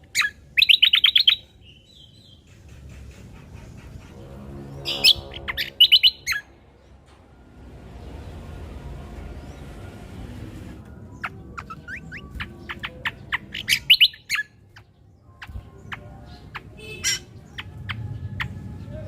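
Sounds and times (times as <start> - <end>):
bird chirping and whistling: 0.1 - 2.5, 4.9 - 6.5, 11.2 - 18.6.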